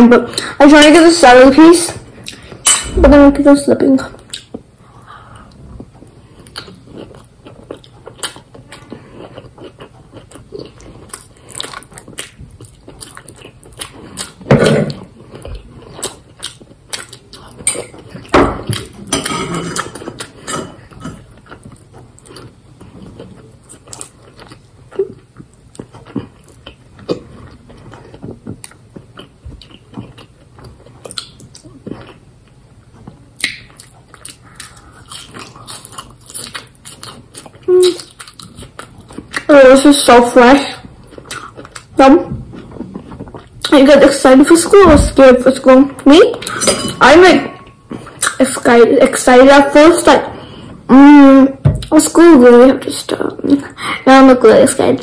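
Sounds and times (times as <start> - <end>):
person chewing food: 2.0 - 2.8, 4.2 - 39.5, 40.5 - 43.8, 47.7 - 48.4.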